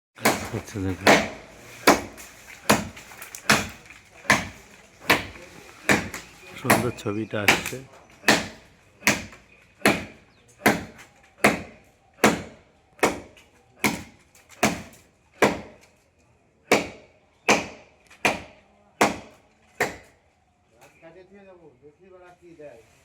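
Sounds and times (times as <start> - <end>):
blade chopping into tree: 0.2 - 15.8.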